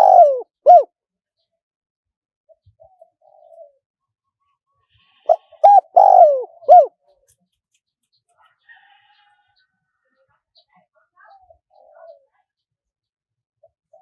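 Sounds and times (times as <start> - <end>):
dove cooing: 0.0 - 0.9, 2.8 - 3.8, 5.2 - 7.0, 11.7 - 12.2.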